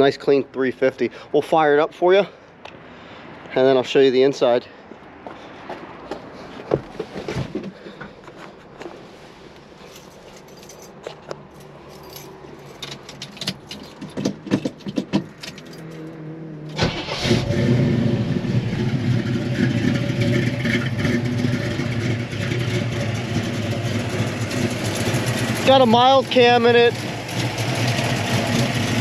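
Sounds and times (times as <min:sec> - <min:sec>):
engine starting and running: 0:16.6 - 0:29.0.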